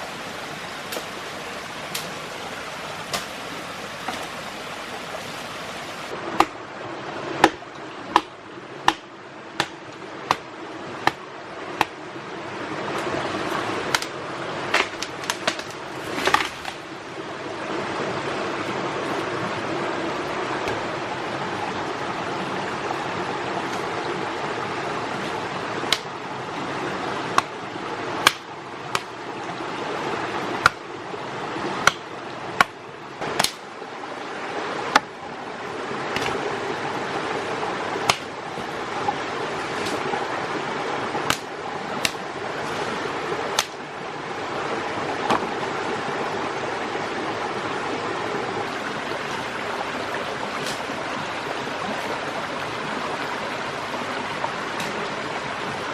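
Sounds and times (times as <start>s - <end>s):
stream water rushing: 0.0s - 55.9s
sharp knocks: 7.4s - 11.2s.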